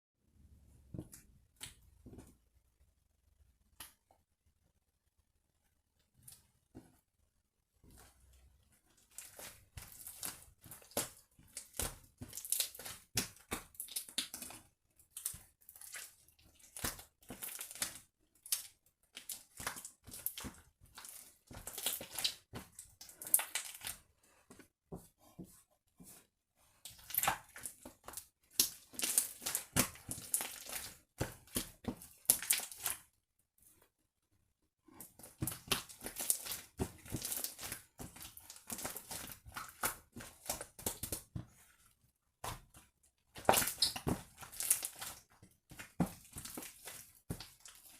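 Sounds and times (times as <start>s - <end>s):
slime squishing and crackling: 9.0s - 24.0s, 26.8s - 33.1s, 35.0s - 41.8s, 42.4s - 47.9s.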